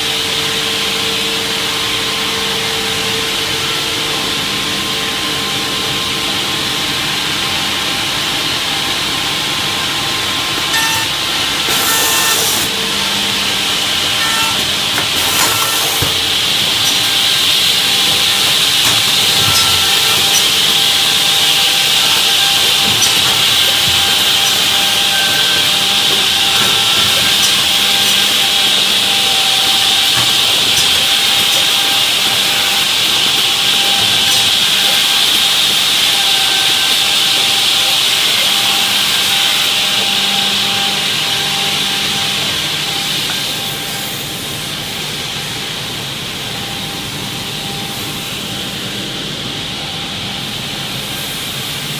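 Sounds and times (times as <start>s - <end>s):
machine high hiss: 0.5s - 51.9s
motor hum: 9.0s - 45.3s.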